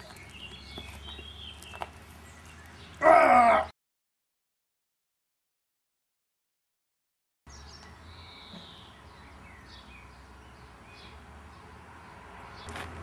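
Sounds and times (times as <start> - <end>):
birds chirping: 0.0 - 3.7, 7.5 - 12.8.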